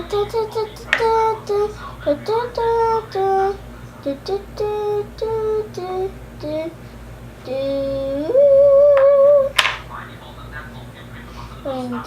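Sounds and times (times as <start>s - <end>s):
person humming: 0.0s - 6.8s, 7.4s - 9.6s.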